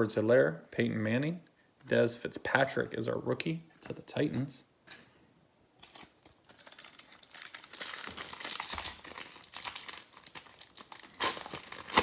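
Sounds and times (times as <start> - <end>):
wrapper tearing and crinkling: 5.8 - 12.0.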